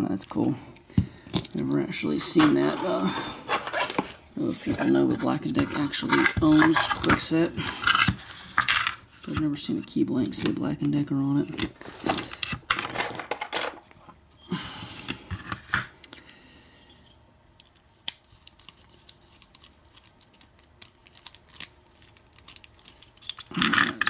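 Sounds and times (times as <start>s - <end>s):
metal lock parts scraping: 1.3s - 9.0s, 16.8s - 24.0s
metal lock parts clicking: 17.6s - 23.5s.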